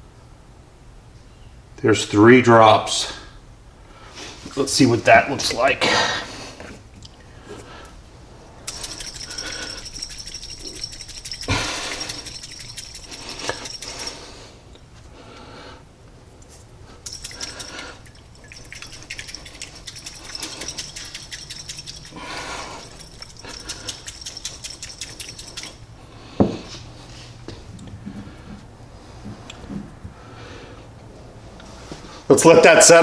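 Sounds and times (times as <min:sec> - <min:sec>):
paint stirred in cup: 0:08.6 - 0:14.5, 0:17.0 - 0:25.9.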